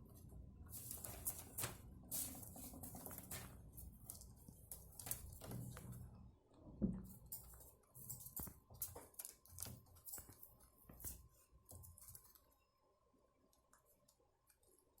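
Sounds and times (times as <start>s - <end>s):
faint clicking and scratching: 0.0s - 15.0s
faint steady hum: 0.0s - 15.0s.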